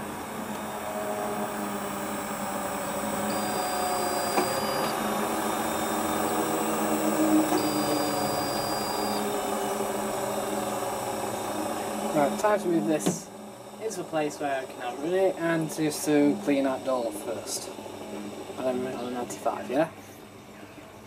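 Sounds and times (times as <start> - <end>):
washing machine motor hum: 0.0 - 19.9
faint high tone: 3.3 - 5.0, 7.6 - 9.4.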